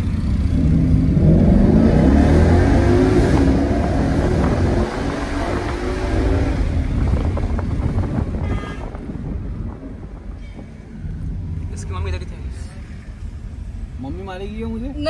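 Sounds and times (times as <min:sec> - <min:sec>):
car engine accelerating: 0:00.0 - 0:08.4.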